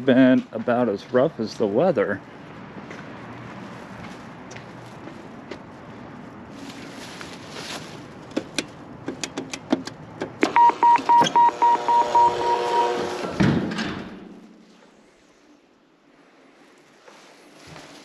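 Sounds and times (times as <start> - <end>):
car door chime beeping: 10.5 - 13.1.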